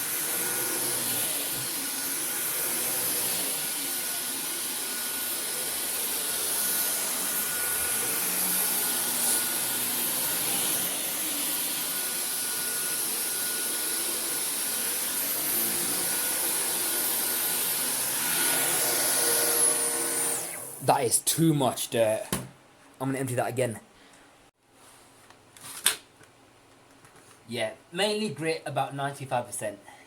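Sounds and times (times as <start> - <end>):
vacuum cleaner on carpet: 0.0 - 20.8.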